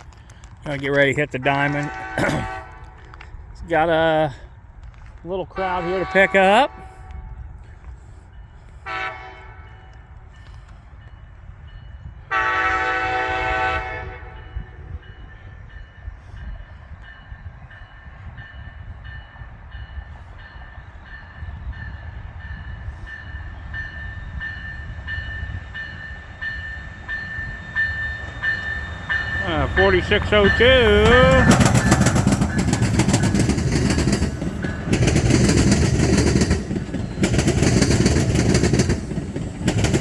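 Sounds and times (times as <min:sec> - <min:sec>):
low rumble of train: 0:00.0 - 0:40.0
train horn blasts: 0:01.6 - 0:03.2, 0:05.6 - 0:07.5, 0:08.8 - 0:10.0, 0:12.2 - 0:15.2, 0:28.5 - 0:32.8
bell ringing: 0:26.0 - 0:35.5.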